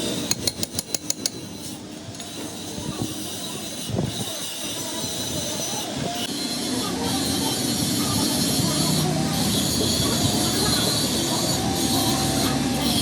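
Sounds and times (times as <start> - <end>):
sharp metallic taps: 0.2 - 1.4
mechanical noise with squealing hiss: 1.5 - 13.0.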